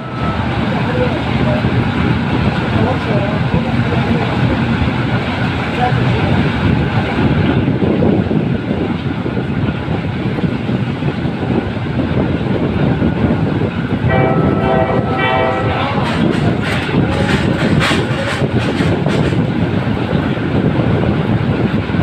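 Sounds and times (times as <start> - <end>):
pulsing warning signal: 0.0 - 0.8
train rumbling and rattling: 0.0 - 22.0
train wheels clacking: 14.0 - 20.4.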